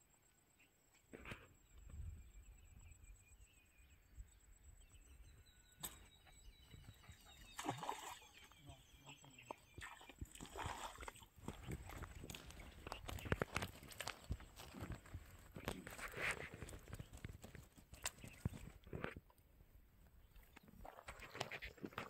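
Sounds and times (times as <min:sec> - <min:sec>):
small birds chirping: 0:00.0 - 0:19.3
rustling or splashing: 0:09.8 - 0:19.2.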